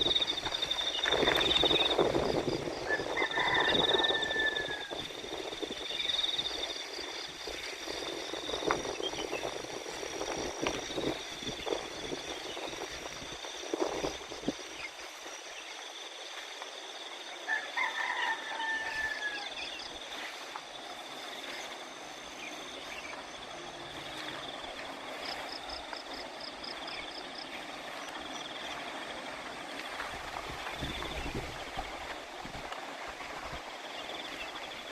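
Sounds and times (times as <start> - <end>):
insects and frogs chirring: 0.0 - 34.9
drawn-out call: 2.8 - 5.0, 17.4 - 20.0.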